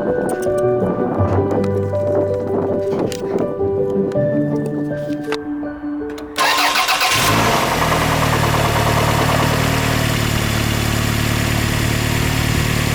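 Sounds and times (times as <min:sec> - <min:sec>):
engine starter cranking: 0:06.1 - 0:11.1
car engine idling: 0:06.4 - 0:12.9.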